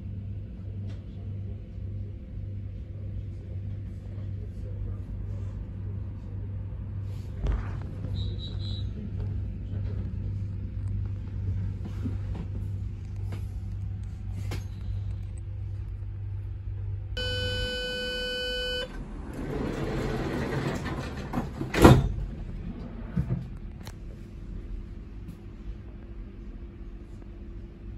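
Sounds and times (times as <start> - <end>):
electric train hum: 0.0 - 27.9
door release beep: 17.2 - 19.0
sliding doors hissing open: 19.0 - 22.2.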